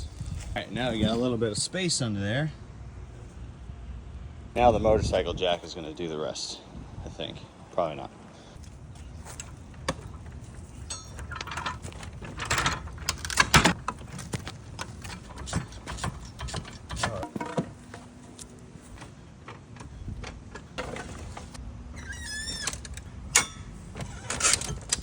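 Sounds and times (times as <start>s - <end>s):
jack creaking: 8.9s - 25.0s
jack clicking and knocking: 9.4s - 21.6s.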